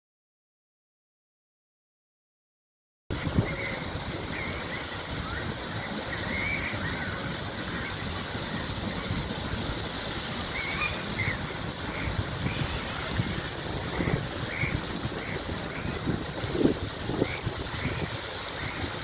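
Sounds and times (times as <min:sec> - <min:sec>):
fountain water splashing: 0:03.1 - 0:19.0
wind on microphone: 0:03.1 - 0:19.0
bird calls: 0:03.4 - 0:09.2, 0:10.4 - 0:13.1, 0:13.9 - 0:16.1.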